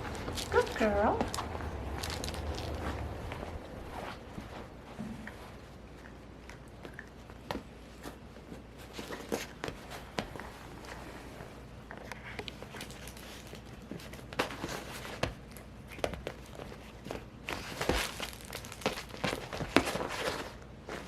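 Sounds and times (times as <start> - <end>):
crinkly rustling: 0.0 - 21.0.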